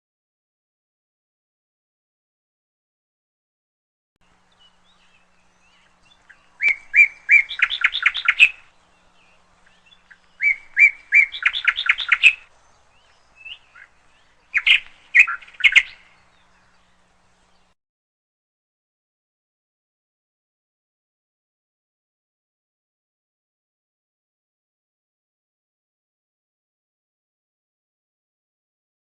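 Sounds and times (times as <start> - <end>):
canary chirping: 5.7 - 8.7, 9.7 - 12.5, 14.5 - 16.0.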